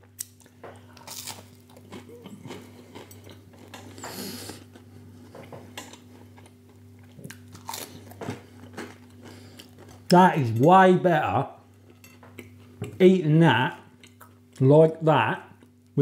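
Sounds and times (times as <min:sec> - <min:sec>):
person biting and chewing toast: 0:00.1 - 0:04.8, 0:06.0 - 0:10.1.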